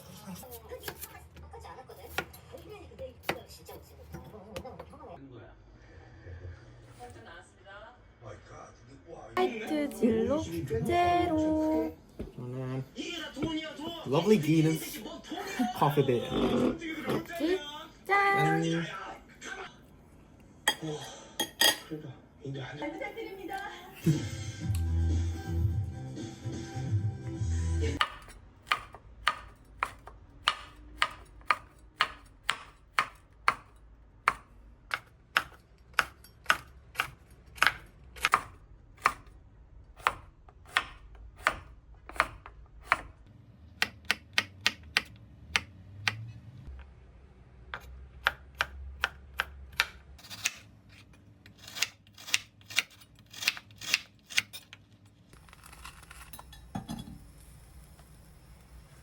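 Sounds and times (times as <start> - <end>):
knife chopping on cutting board: 0.7 - 1.2, 2.0 - 2.4, 28.0 - 39.3, 40.0 - 43.2, 43.8 - 46.2, 47.7 - 51.0.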